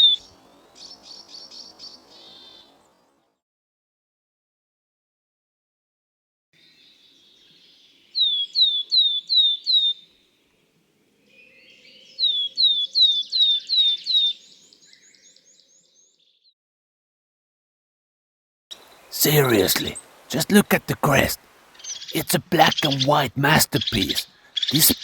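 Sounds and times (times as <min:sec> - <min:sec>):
bird singing whistles: 0:00.0 - 0:02.6, 0:08.2 - 0:10.0, 0:11.4 - 0:16.2
faint bird chirps: 0:00.0 - 0:03.2, 0:06.6 - 0:10.3, 0:11.1 - 0:16.5, 0:21.6 - 0:25.0.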